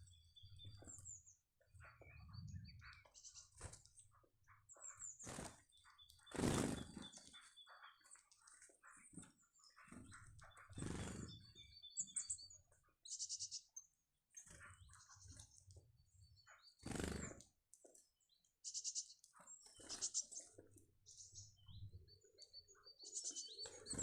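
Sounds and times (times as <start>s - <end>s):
bird trill: 0.0s - 15.5s, 16.2s - 17.4s, 18.6s - 24.0s
small birds chirping: 0.0s - 24.0s
wings flapping: 5.2s - 7.5s, 9.9s - 11.4s, 16.8s - 17.4s.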